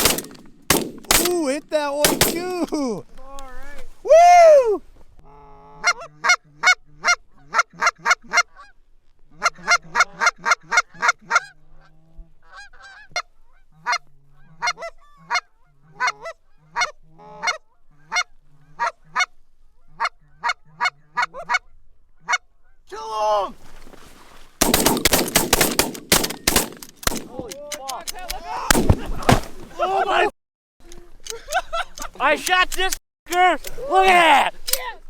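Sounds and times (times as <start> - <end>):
goose call honks and clucks: 5.2 - 22.8.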